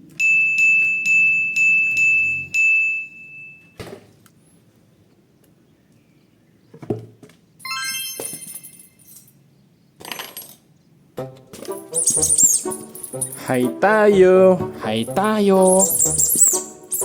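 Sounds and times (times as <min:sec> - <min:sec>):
high bell-like chime: 0:07.6 - 0:09.0.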